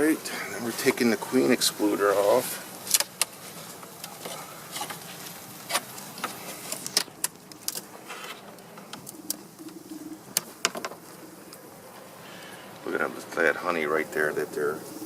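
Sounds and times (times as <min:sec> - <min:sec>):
hive parts clicking and knocking: 0:02.9 - 0:11.6
bees buzzing: 0:07.3 - 0:15.0.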